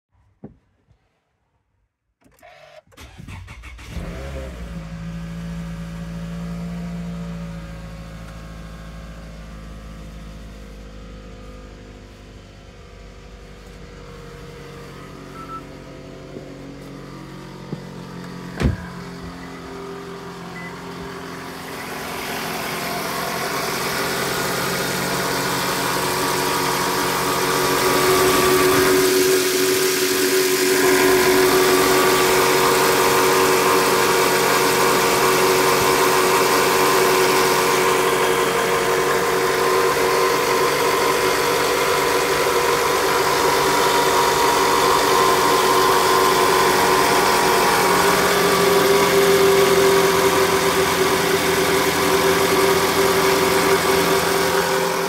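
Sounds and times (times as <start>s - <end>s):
car engine starting and idling: 2.2s - 55.0s.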